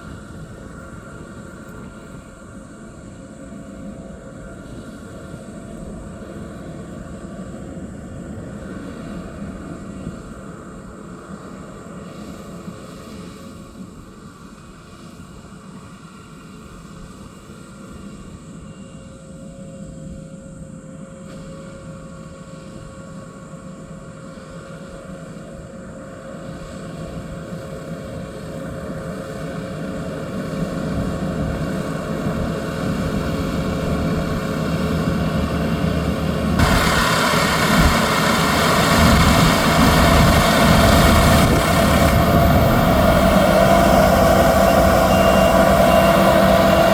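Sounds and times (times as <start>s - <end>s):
combine harvester engine drone: 0.0s - 46.9s
loud rushing threshing noise: 33.9s - 46.9s.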